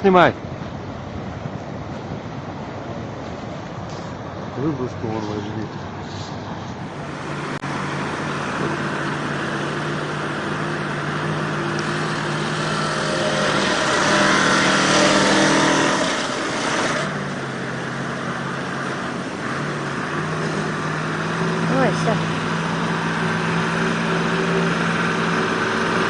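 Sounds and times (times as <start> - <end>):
vehicle engine revving: 6.9 - 26.0.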